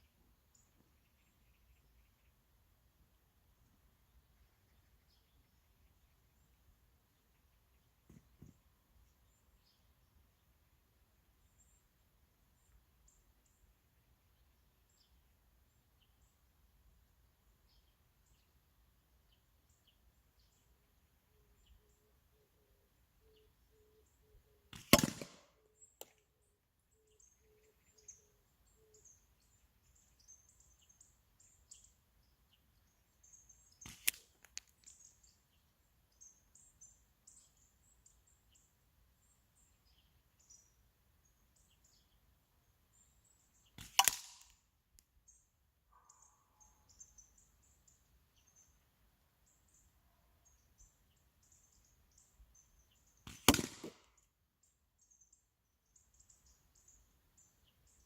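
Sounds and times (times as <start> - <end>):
faint bird chirps: 0.0 - 24.9, 25.6 - 58.0
slingshot snaps: 33.9 - 34.9, 43.8 - 45.1, 53.3 - 54.1.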